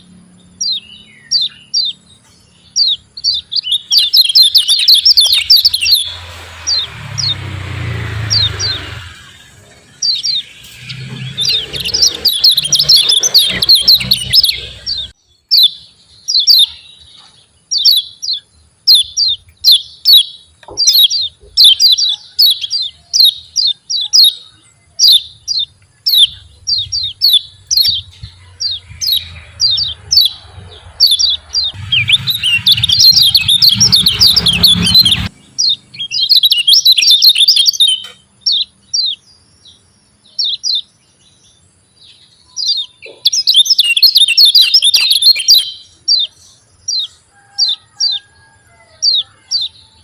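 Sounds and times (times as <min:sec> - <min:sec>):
sharp bird chirps: 0:00.0 - 0:50.0
bird fast dense twittering: 0:02.6 - 0:16.8, 0:20.8 - 0:39.2, 0:42.6 - 0:47.1.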